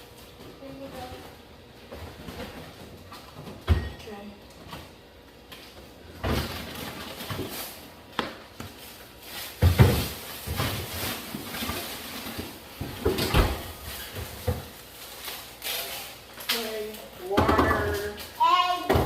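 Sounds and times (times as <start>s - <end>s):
packages knocking in refrigerator: 6.2s - 7.6s, 9.5s - 14.8s, 17.3s - 18.1s.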